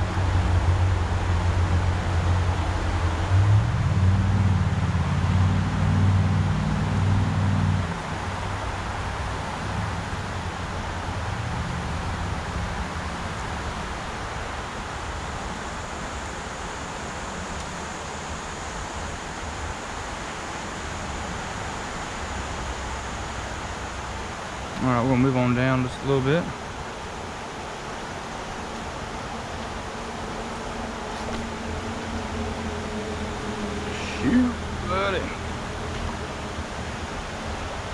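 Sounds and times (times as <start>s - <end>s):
low rumble: 0.0s - 13.5s
faint steady hum: 0.0s - 37.9s
rushing river water: 0.0s - 37.9s.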